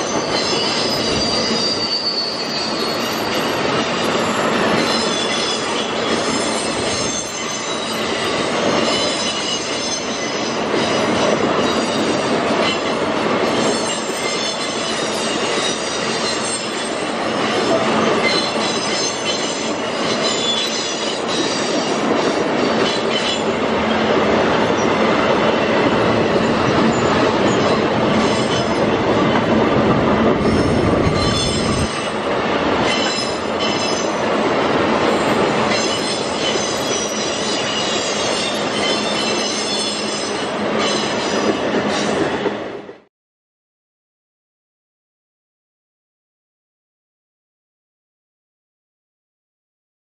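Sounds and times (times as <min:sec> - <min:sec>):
high wheel squeal: 0:00.0 - 0:12.2, 0:13.6 - 0:22.0, 0:30.4 - 0:32.2, 0:35.7 - 0:42.2
rumble of wheels on rail: 0:00.0 - 0:43.1.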